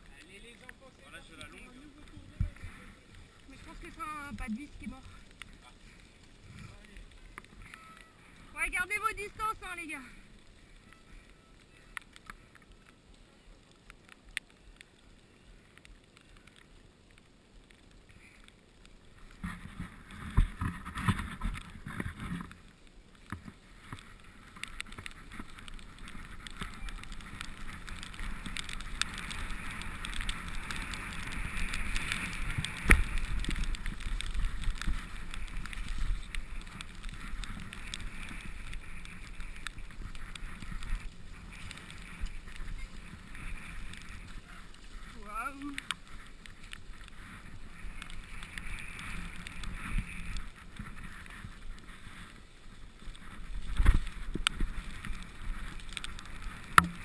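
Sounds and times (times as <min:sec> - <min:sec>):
bike tyres on muddy trail: 0:00.0 - 0:57.0
bike rattles and clicks: 0:17.8 - 0:57.0.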